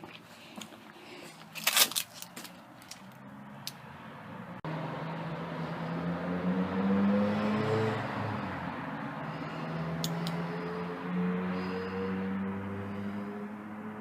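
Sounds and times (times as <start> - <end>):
crunching footsteps on gravel: 0.0 - 3.2
road noise: 0.0 - 14.0
vehicle engine passing: 2.6 - 14.0.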